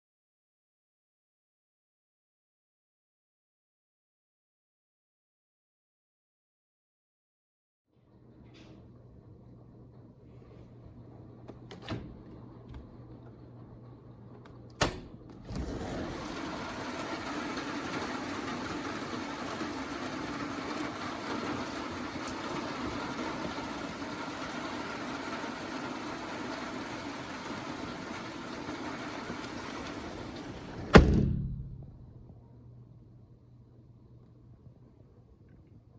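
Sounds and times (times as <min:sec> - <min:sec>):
rain on a metal patio cover: 0:15.7 - 0:30.8
faint hum: 0:30.3 - 0:35.9
sharp knock: 0:30.9 - 0:32.0.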